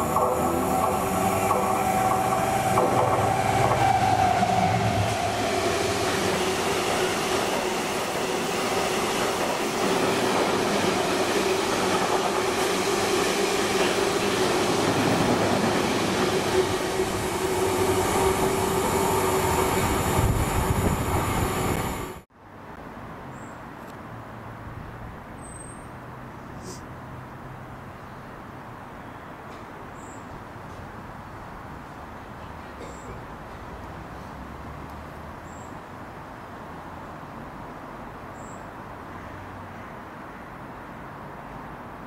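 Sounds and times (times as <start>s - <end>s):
locomotive passing: 0.0s - 22.3s.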